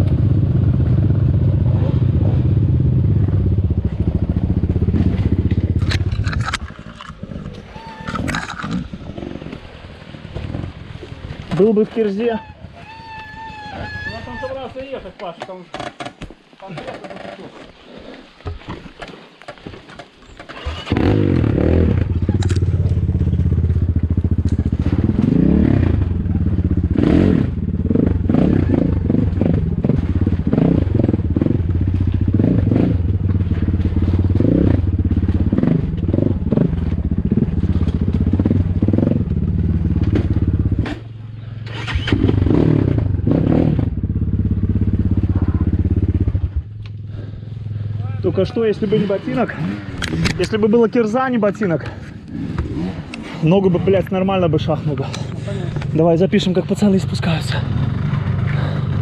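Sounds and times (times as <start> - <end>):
motorcycle engine revving: 0.0 - 7.1, 20.5 - 59.0.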